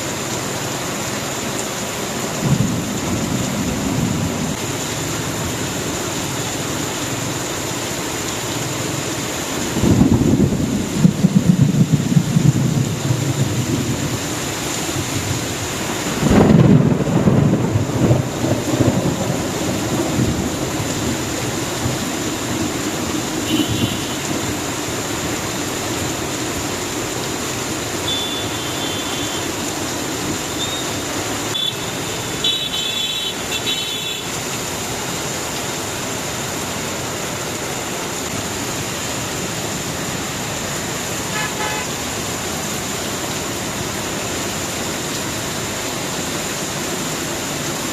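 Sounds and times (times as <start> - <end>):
heavy rain on street: 0.0 - 47.9
traffic passing: 19.2 - 47.9
vehicle horn toots: 23.4 - 24.4, 28.0 - 29.5, 30.6 - 34.4, 41.3 - 42.0.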